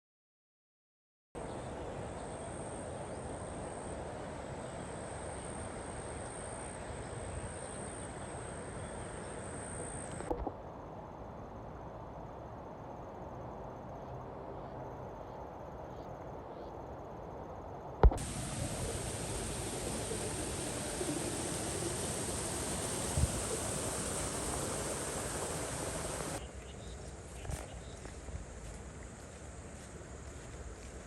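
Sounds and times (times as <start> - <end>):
insects trilling: 14.9 - 31.0
low rushing background: 18.0 - 26.4.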